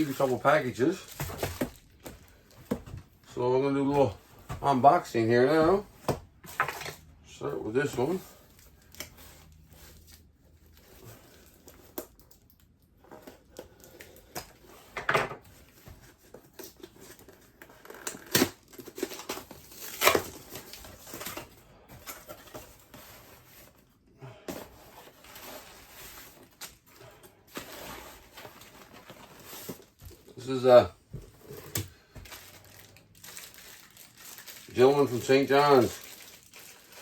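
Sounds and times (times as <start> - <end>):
packaging tearing and rustling: 0.0 - 2.7, 16.5 - 21.5, 31.5 - 37.0.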